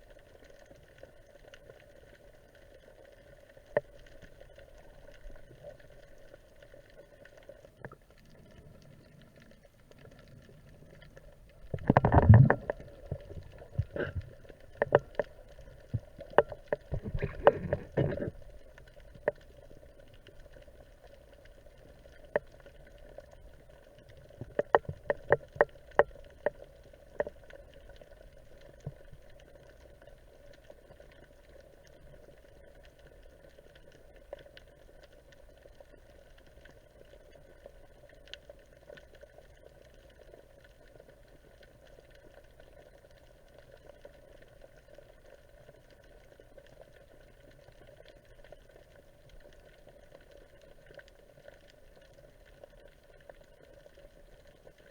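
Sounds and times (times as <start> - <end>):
underwater hiss and hum: 0.0 - 54.9
sharp underwater clicks: 7.4 - 31.0.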